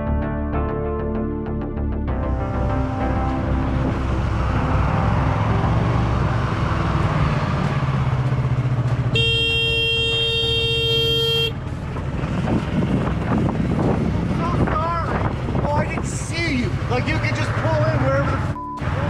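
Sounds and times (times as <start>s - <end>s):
road noise: 2.1s - 19.0s
vehicle engine: 2.2s - 19.0s
vehicle horn held: 9.1s - 11.6s.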